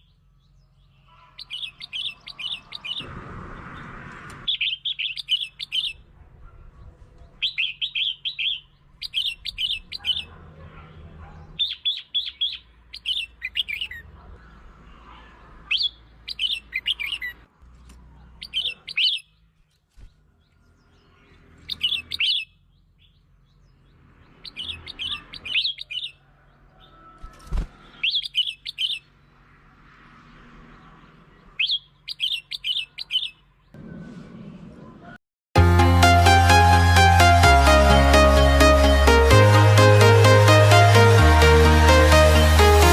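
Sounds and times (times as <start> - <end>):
bird singing bright phrases: 0.0 - 10.4, 11.0 - 29.5, 30.6 - 33.8.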